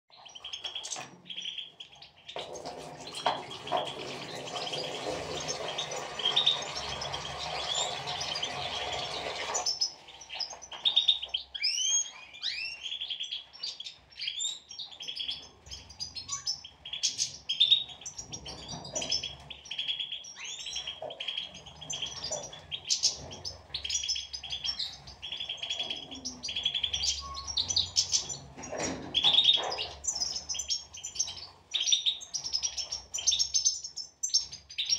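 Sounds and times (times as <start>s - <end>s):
goldfinches twittering: 0.2s - 34.9s.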